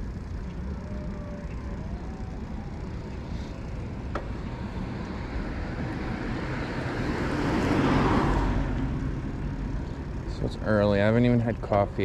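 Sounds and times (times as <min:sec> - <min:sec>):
car passing: 0:02.7 - 0:10.5.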